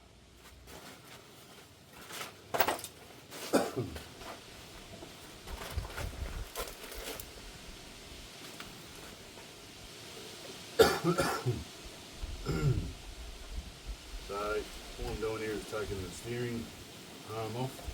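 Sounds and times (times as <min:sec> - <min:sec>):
metal tools clinking on metal: 0:02.5 - 0:03.0.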